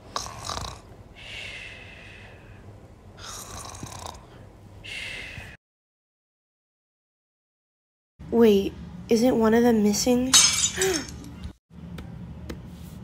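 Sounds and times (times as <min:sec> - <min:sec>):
person snoring: 0:00.0 - 0:00.9, 0:03.2 - 0:04.4.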